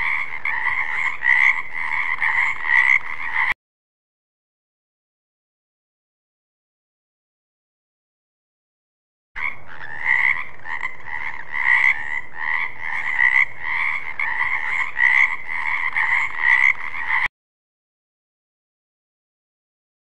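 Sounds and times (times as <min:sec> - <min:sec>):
frogs croaking: 0:00.0 - 0:03.6, 0:09.4 - 0:17.3.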